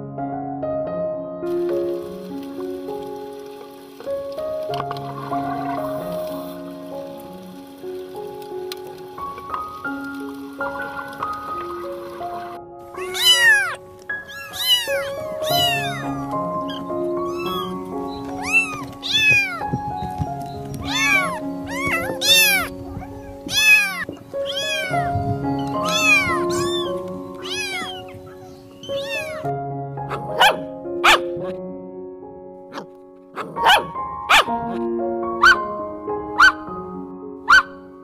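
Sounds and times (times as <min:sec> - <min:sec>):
background music with held notes: 0:00.0 - 0:38.0
kittens meowing: 0:12.9 - 0:19.7, 0:20.8 - 0:29.5.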